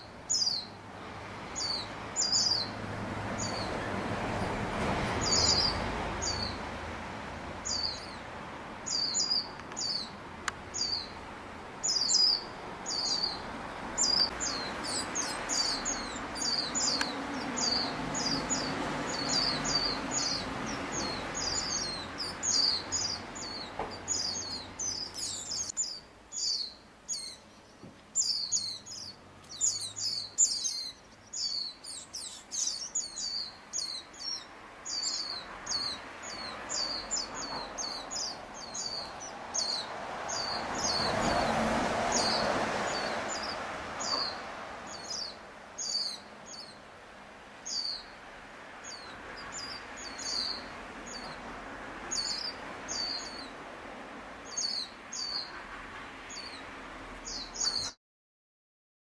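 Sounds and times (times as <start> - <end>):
young bird chirping rapidly: 0.3 - 0.8, 7.6 - 8.2, 8.9 - 10.1, 10.8 - 11.2, 11.8 - 13.4, 14.0 - 27.5, 28.2 - 41.5, 42.2 - 46.8, 48.9 - 51.4.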